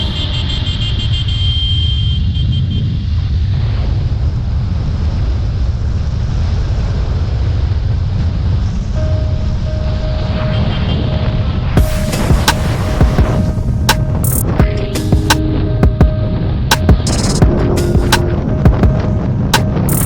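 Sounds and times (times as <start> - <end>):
thin steady tone: 9.0 - 20.0.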